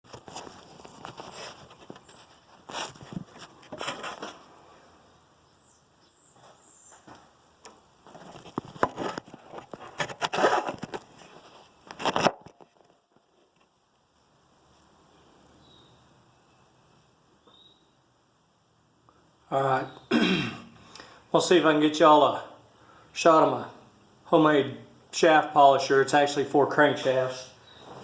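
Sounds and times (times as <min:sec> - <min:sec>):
rustling: 0:00.1 - 0:05.0, 0:06.3 - 0:15.7, 0:27.0 - 0:28.0
faint hiss: 0:00.2 - 0:08.8, 0:12.9 - 0:28.0.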